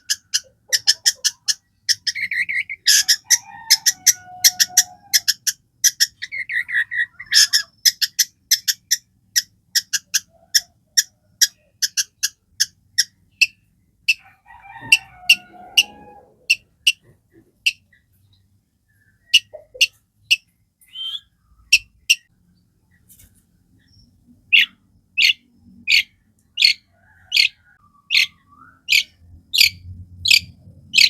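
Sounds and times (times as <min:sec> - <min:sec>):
shrike chattering song: 0:00.0 - 0:14.2, 0:19.0 - 0:22.3, 0:24.5 - 0:31.0.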